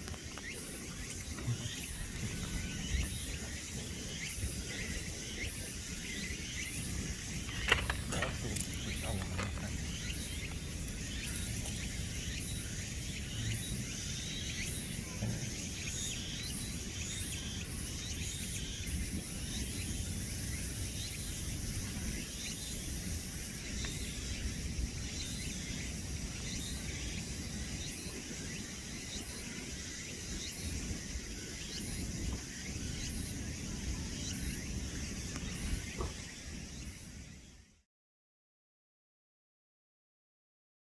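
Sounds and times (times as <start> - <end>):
continuous low rumble: 0.0 - 28.5
insects chirring: 0.0 - 37.8.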